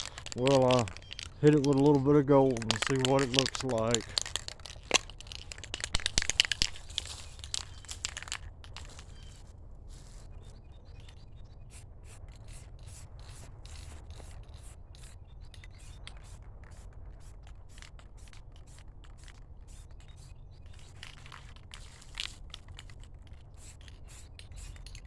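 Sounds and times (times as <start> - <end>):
spray paint can hissing: 2.5 - 9.0.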